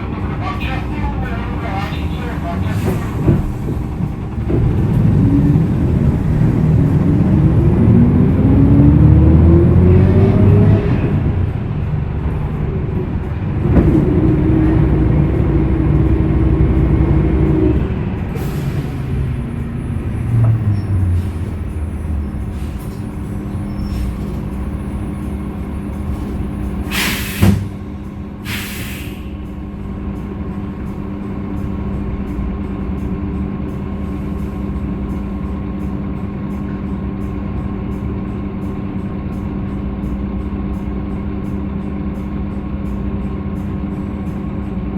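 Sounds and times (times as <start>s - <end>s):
bus engine winding down: 0.0s - 44.9s
air release hisses: 26.9s - 27.7s, 28.4s - 29.4s.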